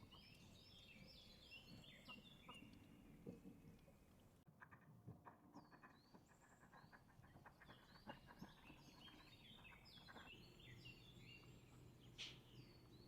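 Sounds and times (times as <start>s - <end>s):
small birds chirping: 0.0s - 3.1s, 5.5s - 13.0s.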